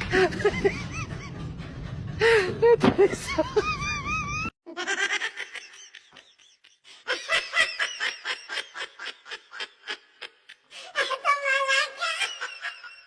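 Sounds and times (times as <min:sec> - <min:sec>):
high-pitched laughing sounds: 0:02.7 - 0:13.0.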